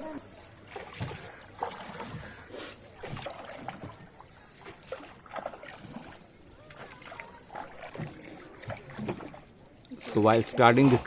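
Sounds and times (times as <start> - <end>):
oars dipping and knocking: 0.0 - 11.0
water splashing against boat: 0.0 - 11.0.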